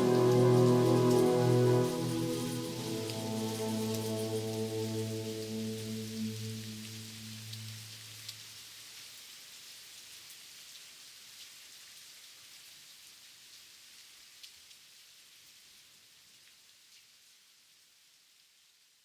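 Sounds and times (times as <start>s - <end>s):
ambient electronic music: 0.0s - 8.0s
rain hissing: 0.0s - 9.9s.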